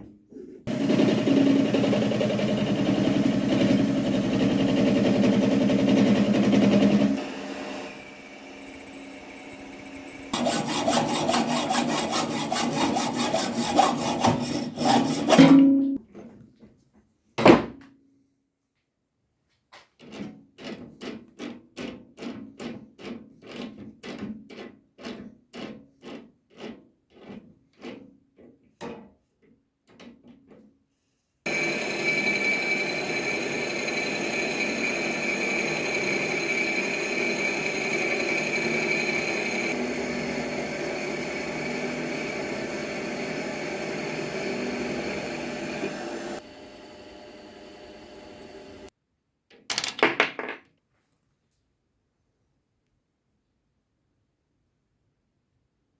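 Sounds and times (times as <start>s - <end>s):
rhythmic hand filing scraping: 10.3s - 15.6s.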